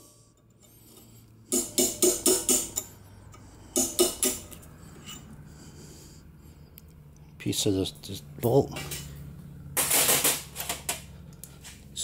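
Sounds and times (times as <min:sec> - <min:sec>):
hammer tapping metal punch: 0:01.5 - 0:04.6.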